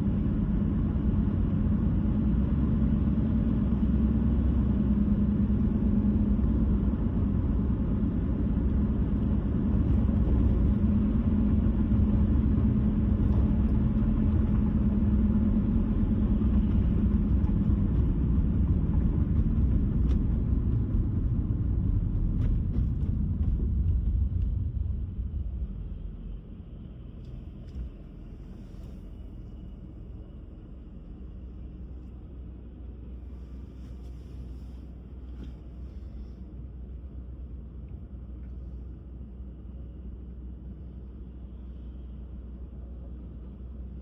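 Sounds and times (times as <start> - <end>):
tyre and road noise rumble: 0.0 - 42.0.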